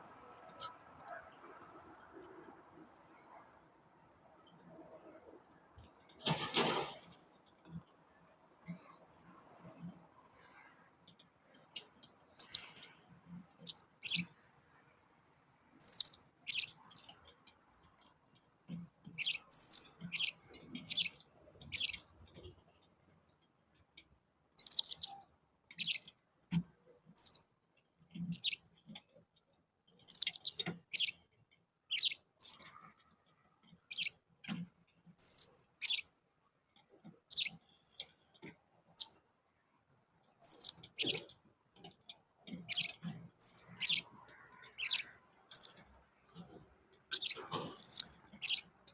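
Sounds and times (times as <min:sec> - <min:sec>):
parrots chirping: 0:12.4 - 0:12.6, 0:13.6 - 0:14.2, 0:15.8 - 0:17.2, 0:19.2 - 0:22.0, 0:24.6 - 0:25.2, 0:28.3 - 0:28.6, 0:30.0 - 0:31.1, 0:31.9 - 0:32.6, 0:35.2 - 0:36.0, 0:40.4 - 0:41.2, 0:42.7 - 0:45.8, 0:47.1 - 0:48.7.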